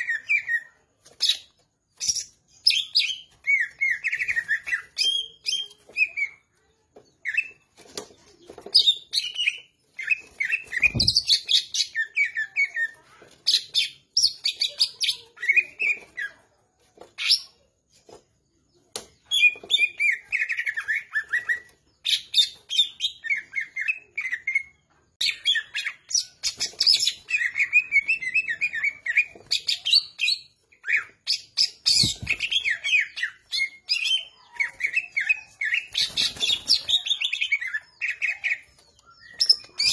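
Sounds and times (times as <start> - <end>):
bird singing: 19.2 - 39.9.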